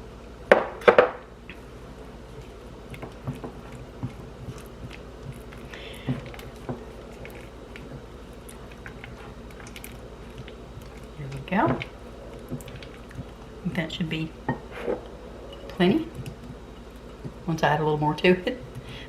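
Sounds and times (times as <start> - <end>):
wet squishing of stirred mixture: 1.5 - 14.8.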